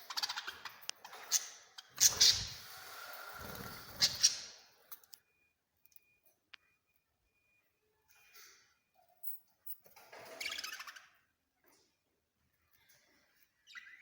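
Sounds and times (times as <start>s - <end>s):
small birds chirping: 0.0s - 2.7s, 3.4s - 4.8s, 12.7s - 14.0s.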